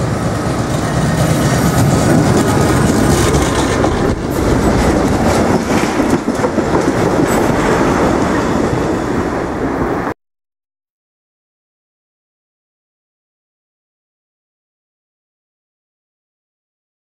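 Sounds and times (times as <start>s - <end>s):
diesel work train passing: 0.0s - 10.2s
wheels clattering over rail joints: 0.1s - 9.6s.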